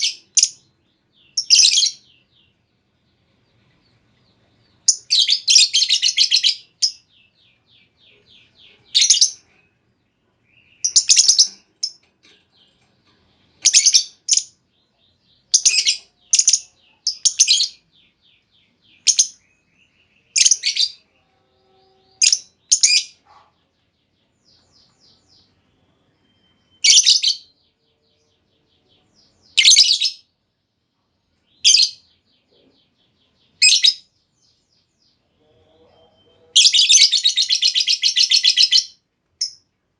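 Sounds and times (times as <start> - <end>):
lovebird shrill chirps: 15.5 - 17.8.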